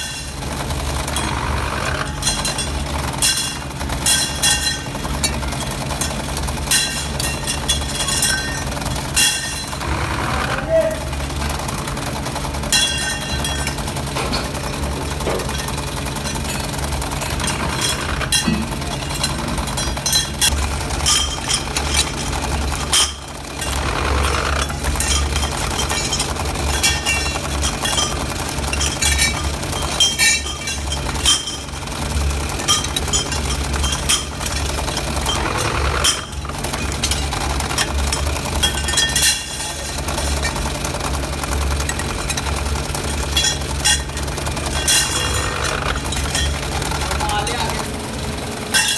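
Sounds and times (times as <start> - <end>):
machinery humming: 0.0 - 48.9.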